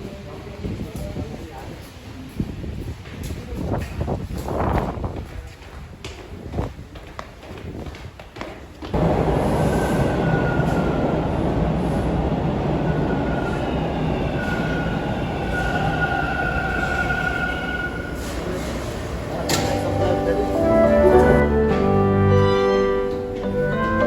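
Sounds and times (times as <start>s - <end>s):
train rumbling on rails: 0.0s - 24.0s
high wheel squeals: 12.8s - 21.2s.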